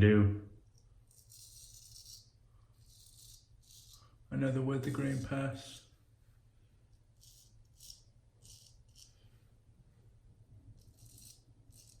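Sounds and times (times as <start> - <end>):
razor scraping stubble: 1.0 - 4.2, 4.8 - 5.9, 7.1 - 9.2, 10.7 - 12.0.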